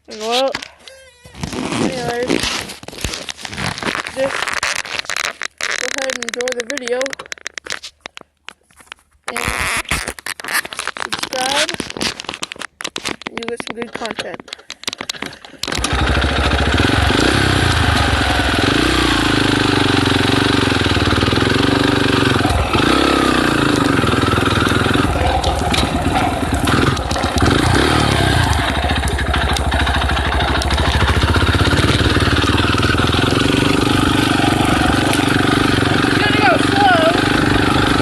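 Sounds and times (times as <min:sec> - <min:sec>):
dirt bike engine revving: 0:15.6 - 0:38.0.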